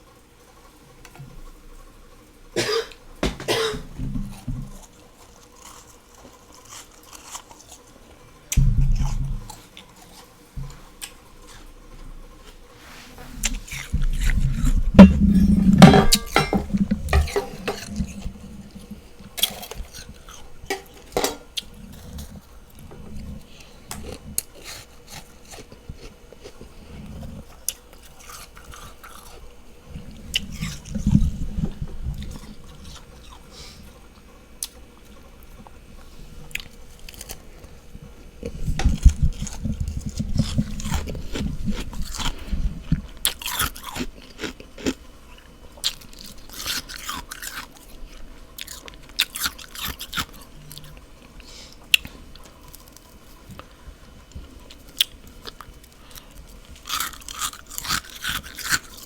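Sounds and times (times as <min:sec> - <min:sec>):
frost crunching when chewed: 0:03.8 - 0:12.8, 0:13.4 - 0:59.0.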